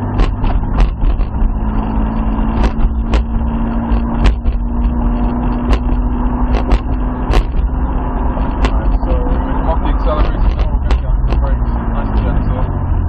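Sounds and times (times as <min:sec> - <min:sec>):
short sharp knocks: 0:00.0 - 0:01.4, 0:02.5 - 0:07.8
car engine running: 0:00.0 - 0:13.0
low road rumble: 0:00.0 - 0:13.0.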